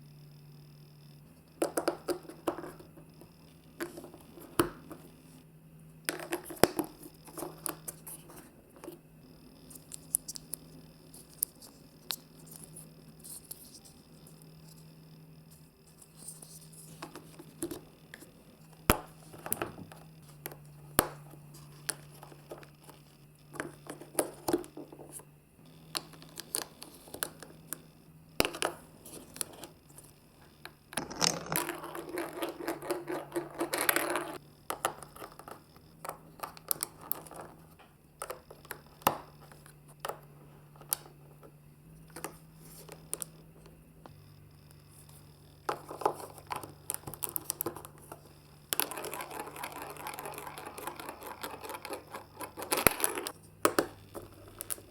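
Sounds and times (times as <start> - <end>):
faint low hum: 0.0 - 54.9
marbles clicking in marble run: 31.0 - 35.4, 48.7 - 53.3.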